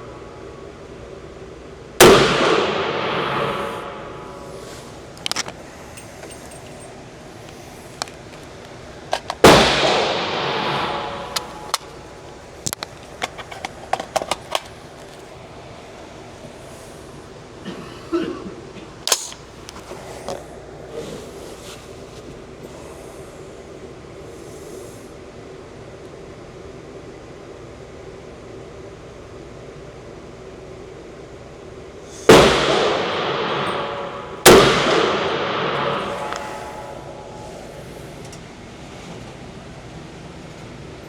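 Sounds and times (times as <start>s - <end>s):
rifle shot with echo: 2.0s - 5.2s, 9.4s - 12.2s, 32.3s - 37.8s.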